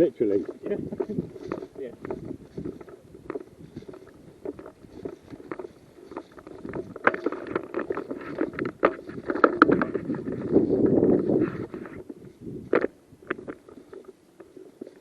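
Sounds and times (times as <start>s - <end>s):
rustling through dry leaves: 0.0s - 15.0s.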